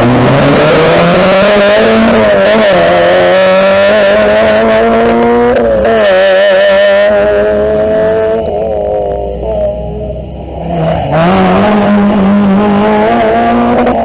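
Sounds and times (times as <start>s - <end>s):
car engine at high revs: 0.0s - 14.0s.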